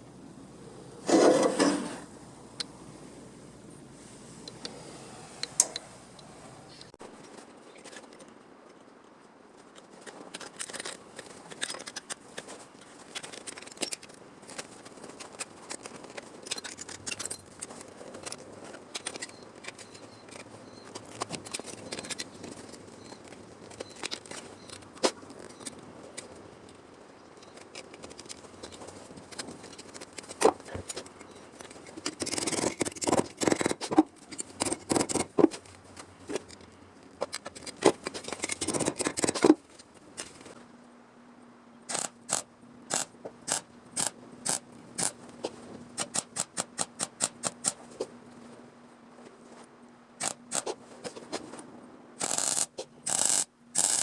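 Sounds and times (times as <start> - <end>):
scraping on sheet metal: 1.0 - 2.1
sharp clicks and ticks: 27.4 - 39.6, 41.9 - 45.2, 46.0 - 47.8, 52.2 - 54.0.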